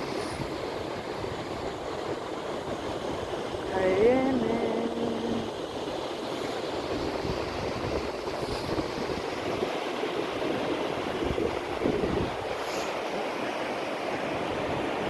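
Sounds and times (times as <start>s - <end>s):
sea surf washing on a beach: 0.0s - 15.0s
wind rumbling on the microphone: 5.3s - 13.4s.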